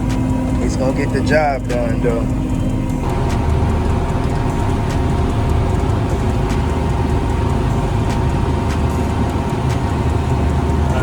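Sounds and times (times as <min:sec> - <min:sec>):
combine harvester rumble: 0:00.0 - 0:11.0
faint steady whine: 0:00.0 - 0:11.0.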